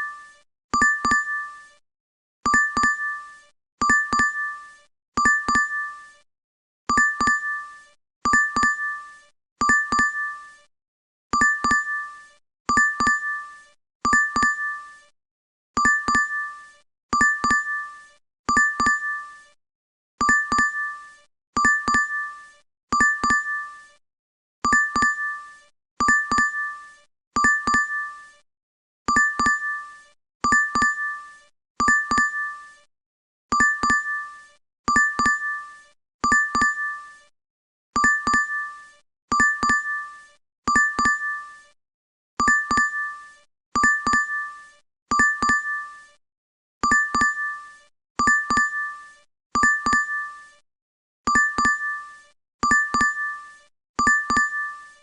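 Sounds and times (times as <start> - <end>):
bell-like alert chime dings: 0.8 - 1.5, 2.5 - 4.6, 5.2 - 5.8, 6.9 - 7.6, 8.3 - 8.9, 9.6 - 10.3, 14.1 - 14.8, 15.8 - 16.5, 17.2 - 17.8, 18.5 - 19.2, 20.2 - 20.9, 21.6 - 22.3, 23.0 - 23.6, 24.7 - 25.4, 26.0 - 26.8, 27.4 - 28.1, 29.1 - 29.8, 30.5 - 31.2, 31.8 - 32.6, 33.6 - 34.3, 34.9 - 35.6, 36.2 - 37.0, 38.0 - 38.7, 39.3 - 40.0, 40.7 - 41.4, 42.4 - 43.2, 43.8 - 44.4, 45.1 - 45.8, 46.8 - 47.6, 48.2 - 49.0, 49.6 - 50.3, 51.3 - 52.0, 52.6 - 55.0.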